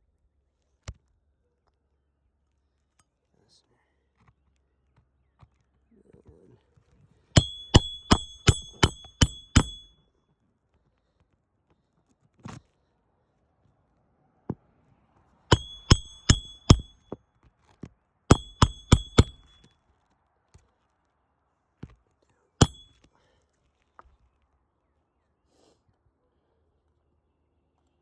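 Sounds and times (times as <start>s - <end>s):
hatchet striking nails: 7.4s - 10.0s, 15.5s - 17.2s, 18.3s - 19.7s, 22.6s - 23.1s.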